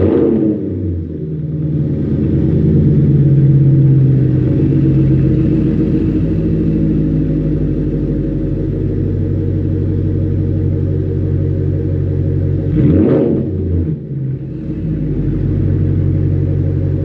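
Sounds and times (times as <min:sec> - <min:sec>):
car engine idling with deep rumble: 0:00.0 - 0:17.0.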